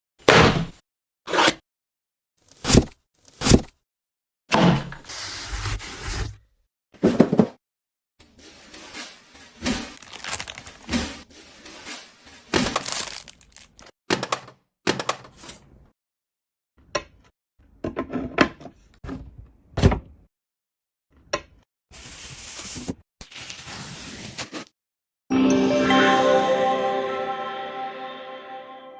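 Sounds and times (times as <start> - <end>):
packaging rustling and scraping: 8.2 - 13.9.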